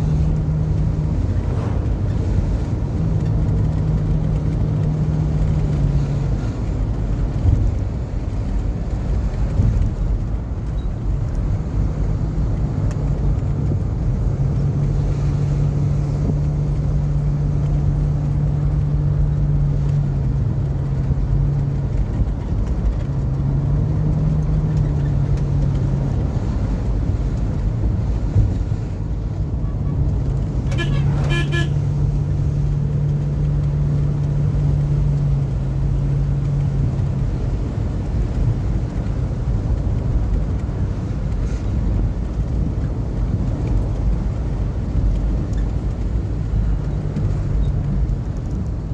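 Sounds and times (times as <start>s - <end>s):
road rumble: 0.0s - 48.9s
vehicle engine driving: 0.0s - 48.9s
car horn toot: 30.6s - 31.9s.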